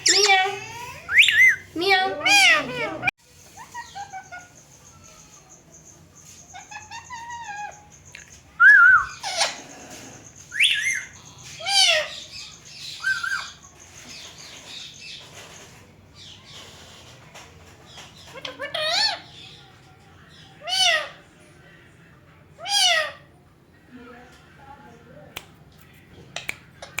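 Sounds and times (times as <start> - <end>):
parakeets squawking: 0.0 - 4.7, 6.5 - 8.0, 9.0 - 17.1, 18.0 - 19.6, 20.6 - 21.2, 22.6 - 23.3.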